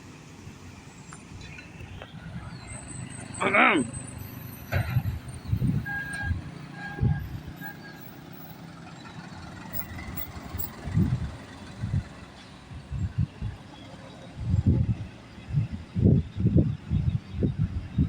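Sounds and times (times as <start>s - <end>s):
truck engine rumbling: 0.0s - 18.0s.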